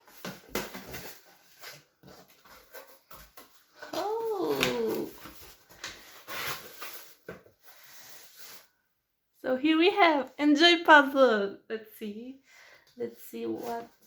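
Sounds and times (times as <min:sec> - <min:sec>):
rustling: 0:00.0 - 0:08.7.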